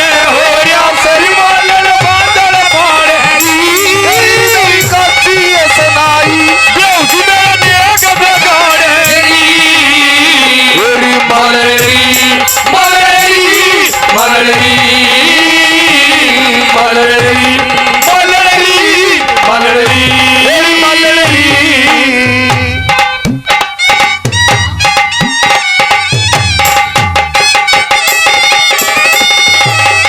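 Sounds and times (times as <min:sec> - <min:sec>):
wavering melodic lead: 0:00.5 - 0:10.1.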